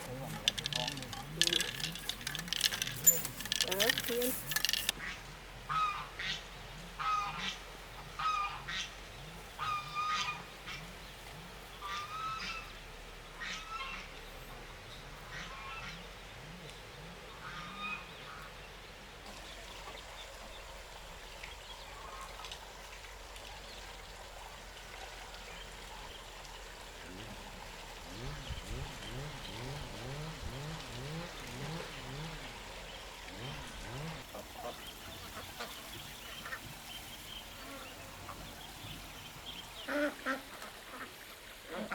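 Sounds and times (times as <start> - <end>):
geese honking: 0.0 - 6.4, 7.0 - 8.9, 9.5 - 10.9, 11.8 - 12.8, 33.4 - 41.9.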